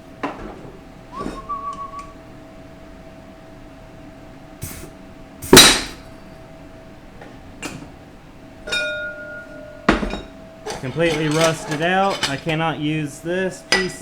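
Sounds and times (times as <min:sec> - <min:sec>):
metal parts clanking on workbench: 0:09.9 - 0:12.8.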